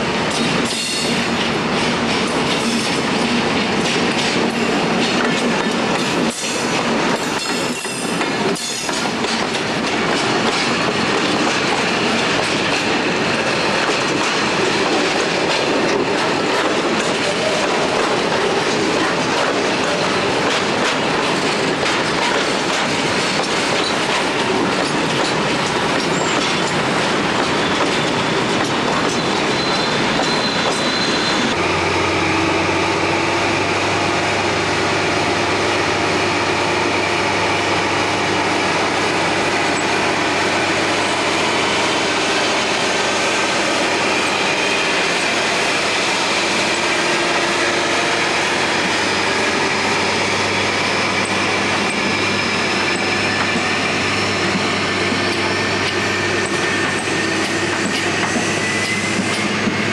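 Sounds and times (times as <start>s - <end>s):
train wheels clattering: 0.2s - 31.7s, 38.0s - 59.9s
train wheels squealing: 25.9s - 26.8s, 27.5s - 31.6s, 50.3s - 59.9s.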